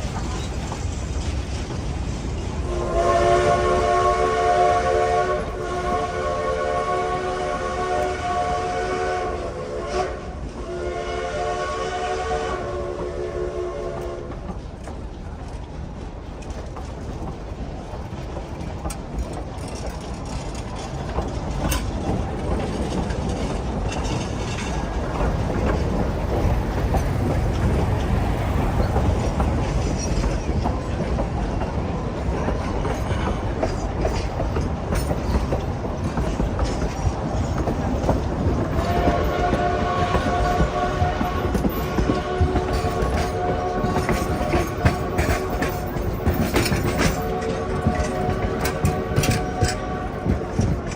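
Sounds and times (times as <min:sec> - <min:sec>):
wheels clacking over rail joints: 0:00.0 - 0:06.0, 0:13.7 - 0:50.9
steam train rumble: 0:00.0 - 0:50.9
steam locomotive whistle: 0:02.6 - 0:14.4, 0:38.6 - 0:50.9.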